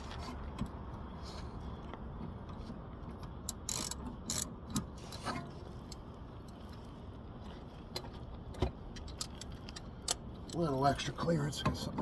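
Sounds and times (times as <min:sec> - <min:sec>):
socket ratchet working: 0:03.5 - 0:04.5.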